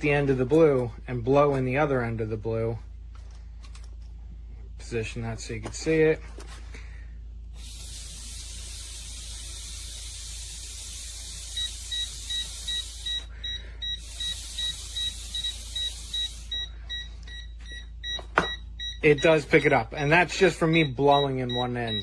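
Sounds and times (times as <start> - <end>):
steady hiss: 7.6 - 13.1
leak detector beeping: 7.6 - 22.0.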